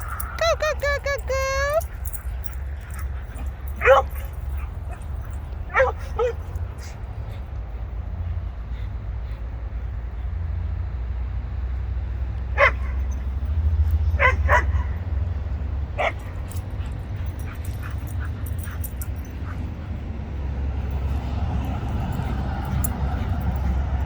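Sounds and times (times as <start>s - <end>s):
dog barking: 2.9s - 7.0s, 12.5s - 13.1s, 14.1s - 15.1s, 16.0s - 16.7s.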